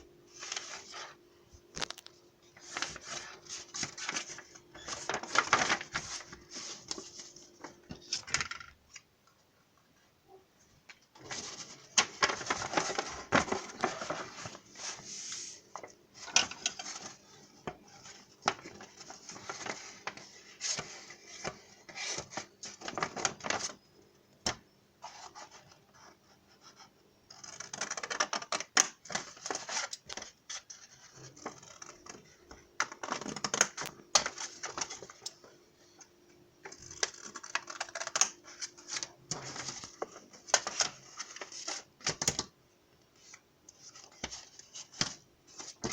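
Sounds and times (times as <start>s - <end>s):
paper scratching and rustling: 2.6s - 7.4s, 11.2s - 15.6s.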